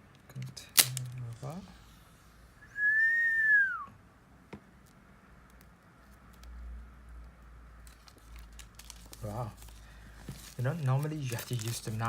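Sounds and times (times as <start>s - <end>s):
high whistle-like tone: 2.6s - 3.9s.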